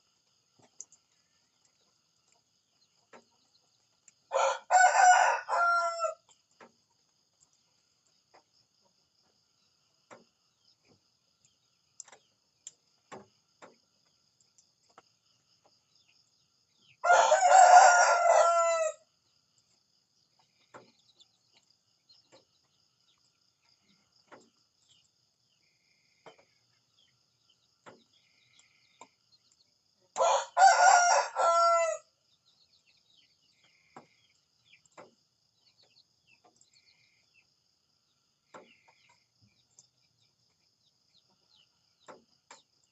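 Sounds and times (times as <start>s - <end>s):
faint ticks and clucks: 0.0s - 17.2s, 17.9s - 42.9s
rooster crowing: 4.3s - 6.2s, 17.0s - 19.0s, 30.2s - 32.1s.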